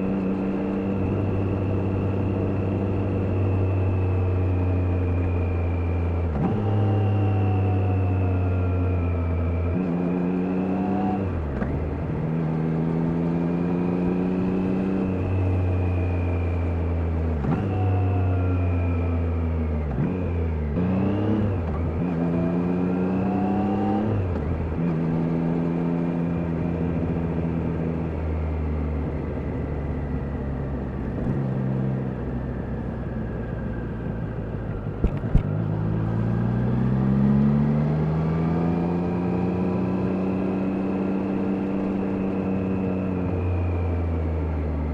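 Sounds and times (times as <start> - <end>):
motorcycle engine revving: 30.6 - 44.0.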